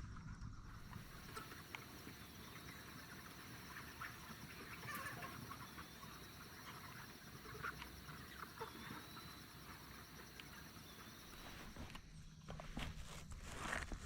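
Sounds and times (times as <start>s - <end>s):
insects chirring: 0.7s - 12.9s
chickens clucking: 0.8s - 12.0s.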